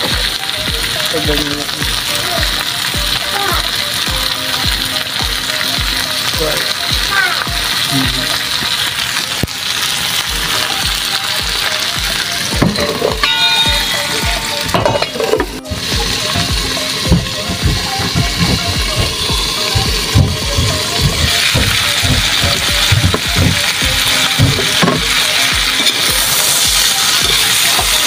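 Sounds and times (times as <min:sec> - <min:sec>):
prawns sizzling in a pan: 0:00.0 - 0:28.0
steady low beat: 0:12.6 - 0:26.3
metal lid clattering onto pan: 0:14.7 - 0:15.5.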